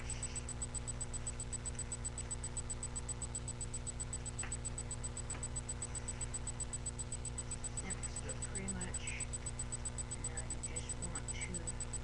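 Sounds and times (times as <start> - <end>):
electrical hum: 0.0 - 12.0
high ticking buzz: 0.0 - 12.0.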